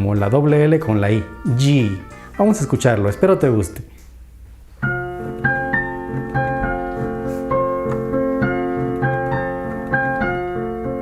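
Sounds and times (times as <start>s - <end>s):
keyboard playing children's song: 0.0s - 3.9s, 4.8s - 11.0s.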